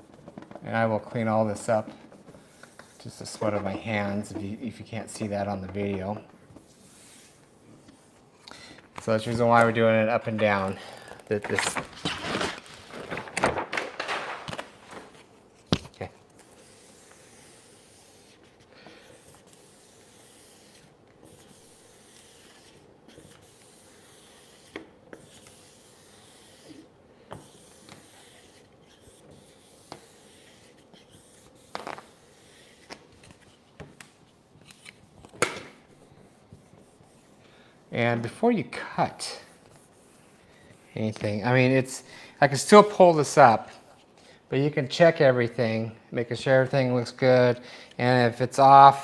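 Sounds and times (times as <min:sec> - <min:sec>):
vinyl wrap rubbing and scraping: 0:09.1 - 0:26.9, 0:27.5 - 0:35.1.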